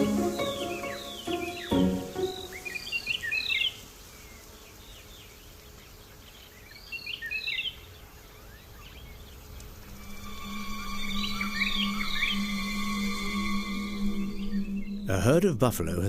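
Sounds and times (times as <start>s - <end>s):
faint outdoor hiss: 0.0s - 16.0s
wild birds chirping: 0.0s - 16.0s.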